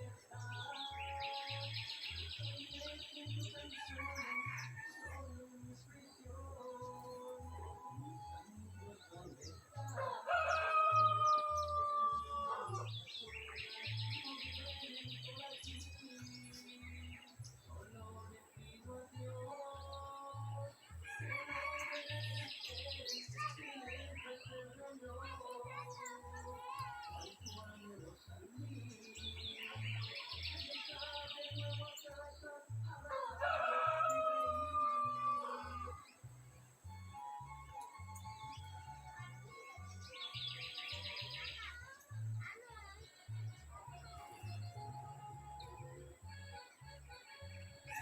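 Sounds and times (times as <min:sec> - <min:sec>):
wild birds calling: 0:00.0 - 0:07.4, 0:08.1 - 0:18.4, 0:32.8 - 0:38.5.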